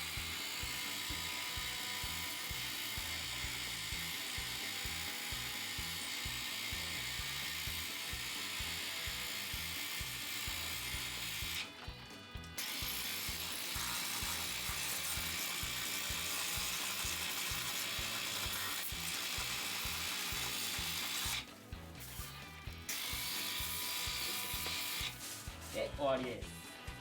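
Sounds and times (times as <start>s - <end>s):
background music: 0.0s - 27.0s
pressure washer spraying water: 12.6s - 25.6s.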